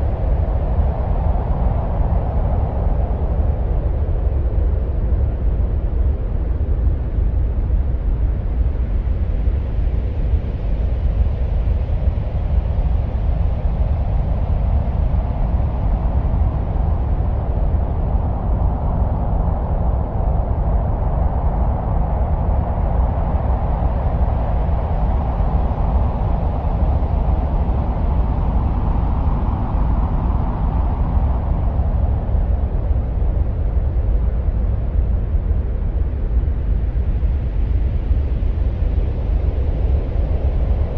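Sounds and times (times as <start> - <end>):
deep wind-like rumble: 0.0 - 40.9.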